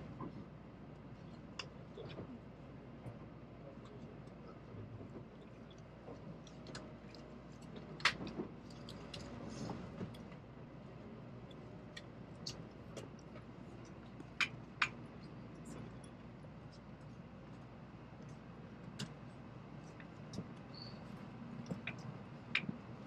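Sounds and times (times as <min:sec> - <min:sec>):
train interior rumble: 0:02.0 - 0:16.0.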